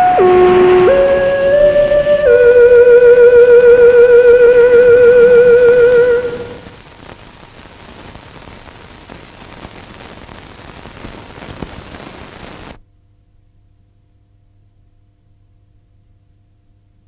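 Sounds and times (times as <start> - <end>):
film soundtrack hiss and crackles: 0.0 - 13.4.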